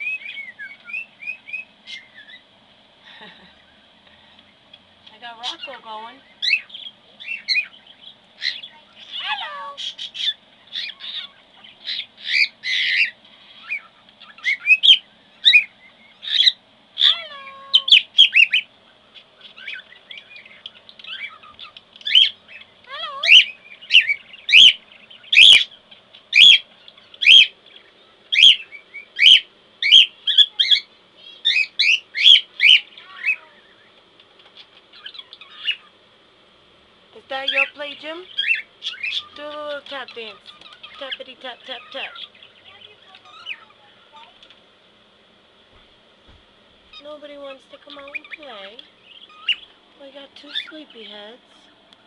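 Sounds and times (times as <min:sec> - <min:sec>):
cockatiel whistling and chirping: 0:00.0 - 0:02.4.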